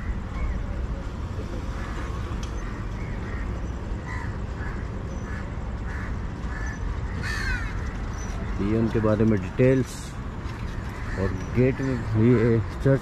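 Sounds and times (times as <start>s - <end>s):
harsh bird calls: 1.7s - 9.9s, 10.7s - 12.8s.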